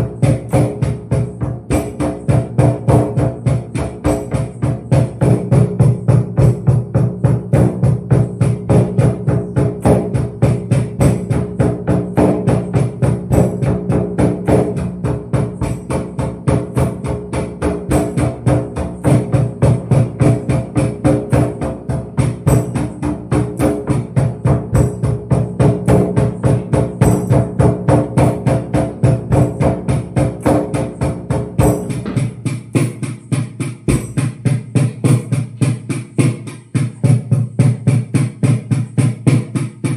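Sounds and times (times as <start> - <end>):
hand percussion beating: 0.0 - 39.9
tambourine jingle: 9.8 - 39.9.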